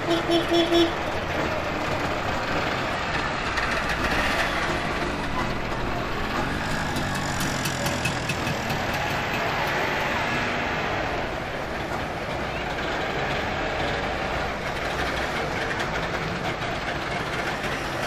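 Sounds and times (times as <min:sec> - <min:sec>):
small car engines pulling away: 0:03.1 - 0:11.5.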